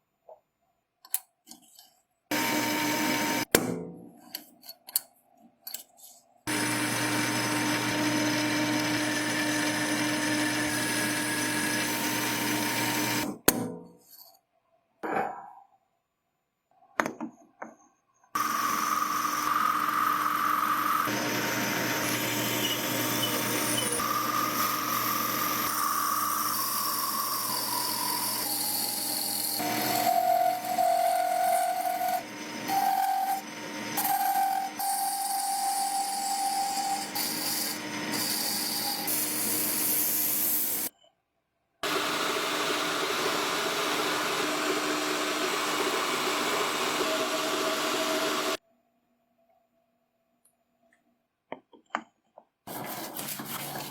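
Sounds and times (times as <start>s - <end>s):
motor whining: 6.5s - 13.2s, 18.4s - 28.0s
rubbing and filing: 52.7s - 53.9s.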